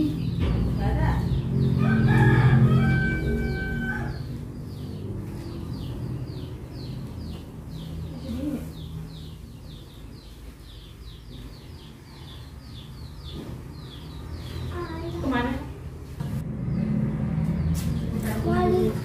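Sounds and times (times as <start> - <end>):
small bird chirping: 3.5 - 15.7.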